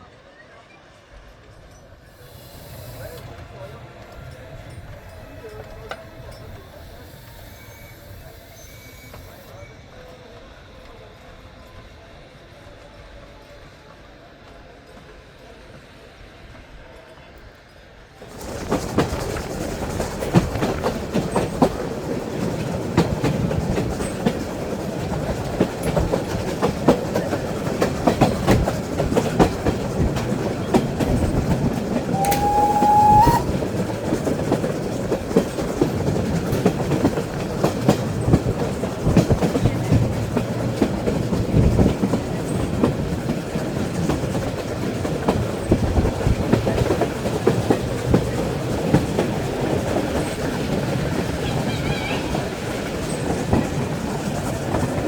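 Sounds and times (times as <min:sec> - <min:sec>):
train rumble: 0:01.0 - 0:55.0
train wheels clattering over rail joints: 0:18.2 - 0:55.0
train whistle blast: 0:32.1 - 0:33.8.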